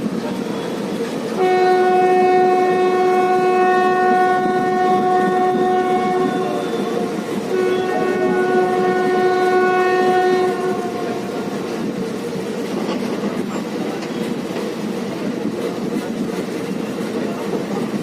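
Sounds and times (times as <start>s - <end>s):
train rumbling and clattering on rails: 0.0s - 18.0s
train horn: 1.4s - 11.8s.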